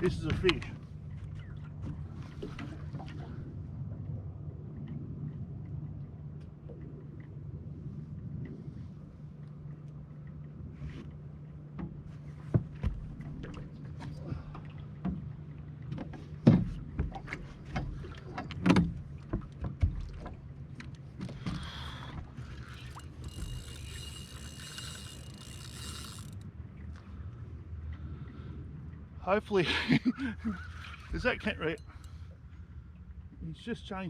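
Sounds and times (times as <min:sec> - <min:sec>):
gear knocking against boat: 0:15.0 - 0:26.4.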